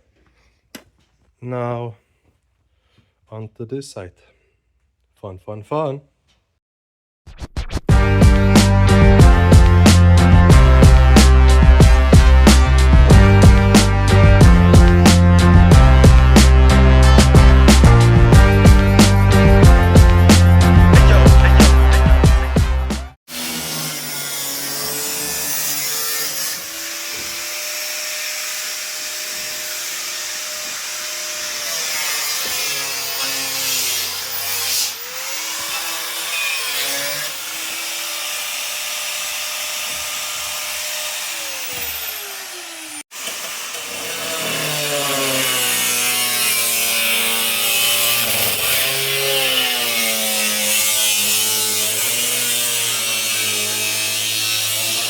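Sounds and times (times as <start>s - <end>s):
power tool working on metal: 23.3s - 55.0s.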